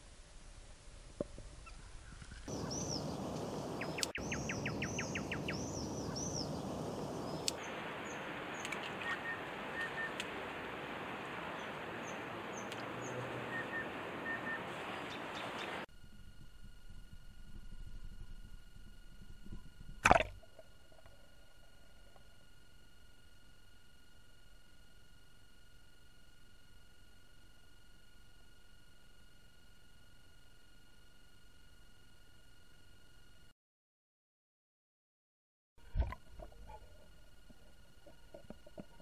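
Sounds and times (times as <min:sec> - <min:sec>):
steady outdoor hiss: 0:00.0 - 0:32.5, 0:35.8 - 0:39.0
small birds chirping: 0:01.6 - 0:10.4, 0:11.5 - 0:15.8.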